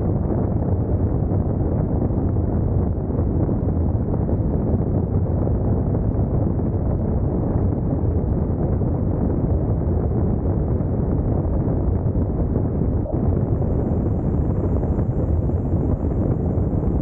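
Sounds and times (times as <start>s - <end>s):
wind rush on microphone: 0.0s - 17.0s.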